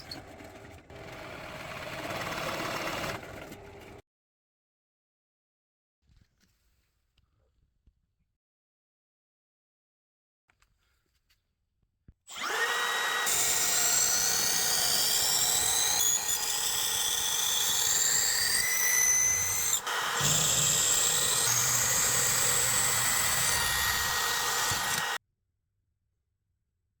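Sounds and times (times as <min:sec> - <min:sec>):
electric drill whining: 0:12.3 - 0:25.2.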